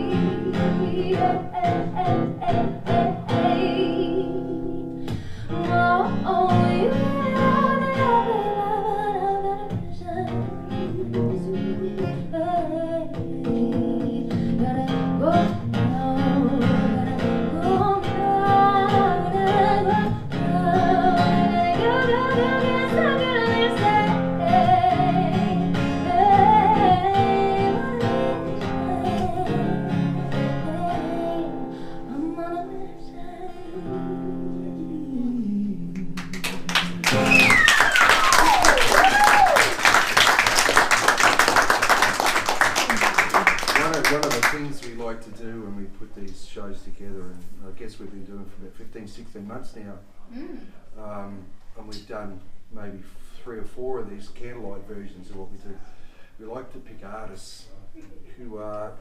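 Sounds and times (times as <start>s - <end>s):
person singing: 0.0s - 4.9s, 5.5s - 36.2s
strummed acoustic guitar: 0.0s - 32.2s.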